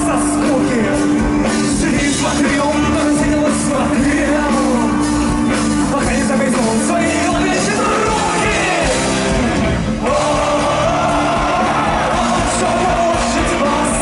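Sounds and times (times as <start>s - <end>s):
rock band playing: 0.0s - 14.0s
person singing: 10.0s - 14.0s.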